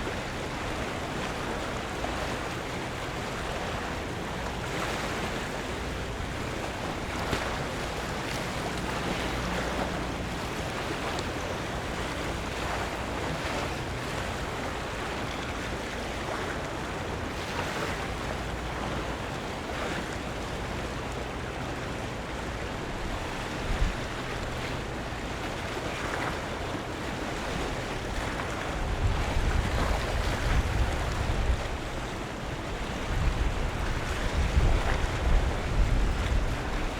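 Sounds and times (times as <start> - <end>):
wind buffeting microphone: 0.0 - 16.8, 22.8 - 25.3, 27.4 - 36.9
water lapping against waterfront: 0.0 - 36.9.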